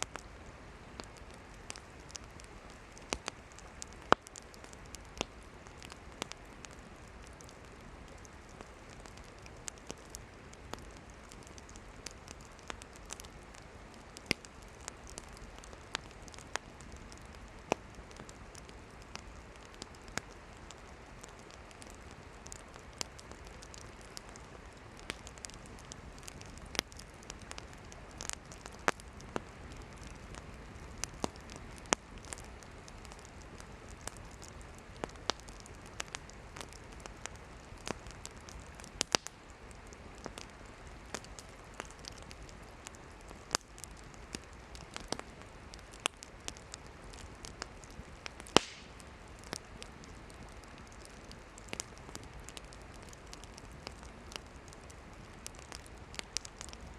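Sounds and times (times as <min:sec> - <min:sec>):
firewood crackling and popping: 0:00.0 - 0:56.9
low hiss of fire: 0:00.0 - 0:56.9.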